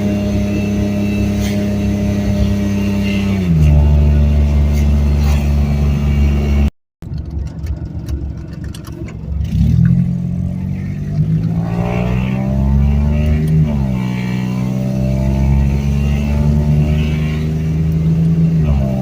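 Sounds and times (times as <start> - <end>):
car engine accelerating: 0.0 - 19.0
gear shift: 0.5 - 14.6.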